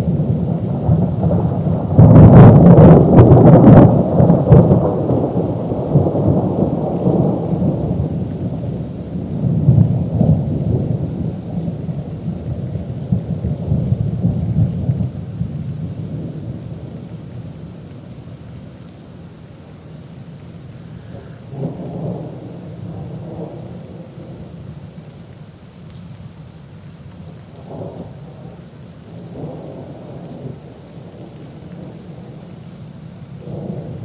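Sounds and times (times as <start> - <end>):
rolling thunder rumble: 0.0 - 18.3, 21.1 - 25.0, 27.6 - 32.7, 33.3 - 34.0
thunder crack: 0.7 - 8.1.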